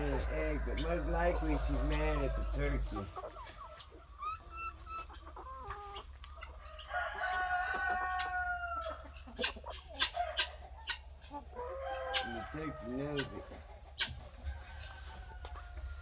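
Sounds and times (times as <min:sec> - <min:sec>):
rooster crowing: 0:00.0 - 0:02.9, 0:06.8 - 0:09.0, 0:11.6 - 0:13.4
chickens clucking: 0:00.0 - 0:16.0.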